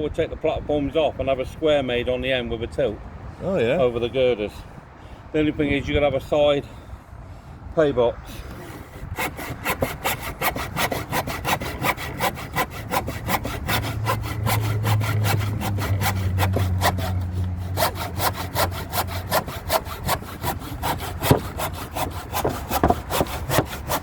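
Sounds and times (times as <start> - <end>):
hand saw cutting timber: 8.3 - 24.0.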